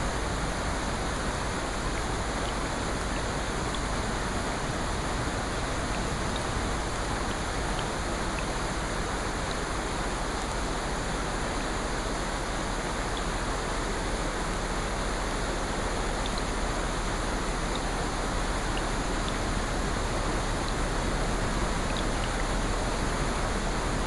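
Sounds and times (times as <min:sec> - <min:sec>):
rushing water: 0:00.0 - 0:24.0
faint small ticks: 0:16.2 - 0:16.6, 0:17.7 - 0:17.9.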